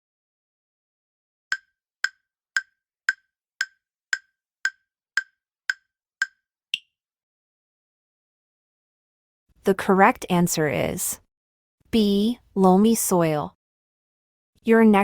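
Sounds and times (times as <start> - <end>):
wood-block-like timer ticks: 1.5 - 6.9.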